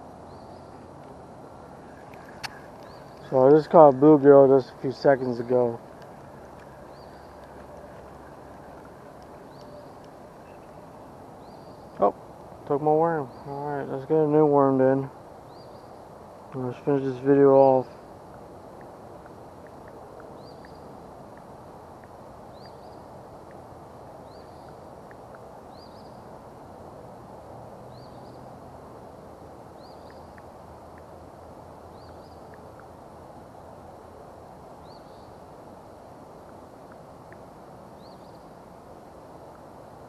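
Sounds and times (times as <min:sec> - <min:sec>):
outdoor background hiss: 0:00.0 - 0:40.0
bird chirping: 0:00.3 - 0:00.9, 0:01.7 - 0:14.1, 0:15.1 - 0:18.0, 0:19.6 - 0:21.0, 0:22.5 - 0:23.2, 0:24.2 - 0:26.3, 0:27.9 - 0:28.5, 0:29.8 - 0:30.5, 0:31.9 - 0:32.7, 0:34.8 - 0:35.4, 0:38.0 - 0:38.6
faint ticks: 0:01.9 - 0:03.6, 0:05.8 - 0:12.5, 0:18.2 - 0:26.2, 0:29.8 - 0:31.3, 0:31.9 - 0:33.0, 0:36.4 - 0:38.5.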